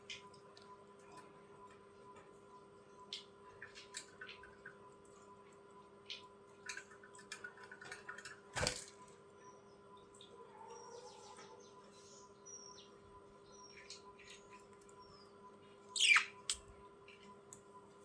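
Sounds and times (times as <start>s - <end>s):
high bird chirps: 10.8s - 16.5s
budgerigars clicking and tapping: 16.0s - 17.3s.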